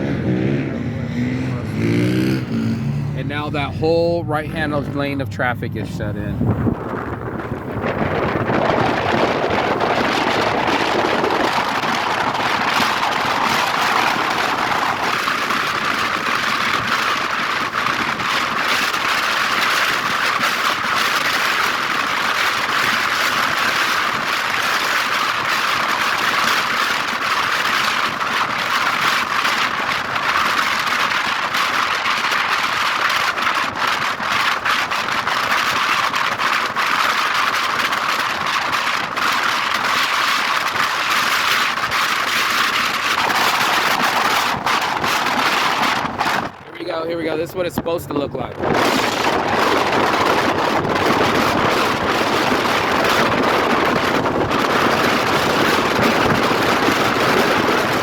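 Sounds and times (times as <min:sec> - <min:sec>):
wind rushing: 0:00.0 - 0:16.9, 0:38.3 - 0:58.0
vehicle road noise: 0:00.0 - 0:58.0.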